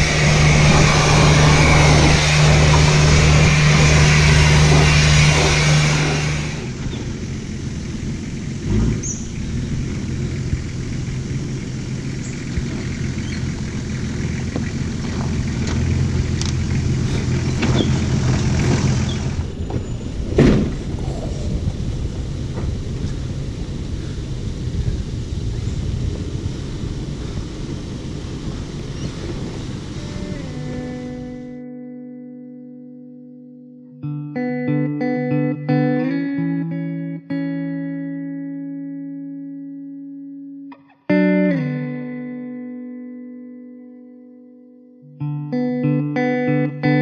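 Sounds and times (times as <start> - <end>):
vehicle engine droning: 0.0 - 31.8
knocks and thumps: 19.7 - 20.9.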